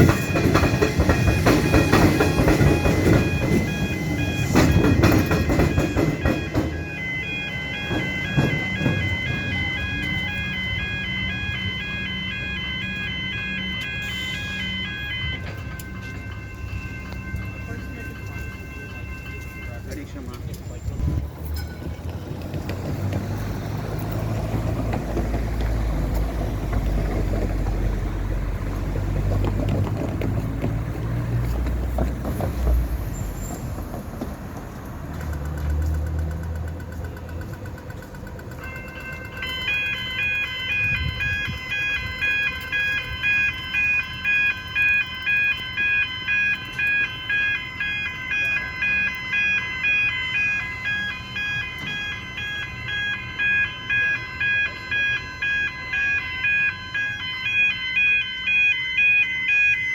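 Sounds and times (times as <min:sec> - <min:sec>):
train rumbling past: 0:00.0 - 0:46.0
level crossing warning bells: 0:00.0 - 0:59.9.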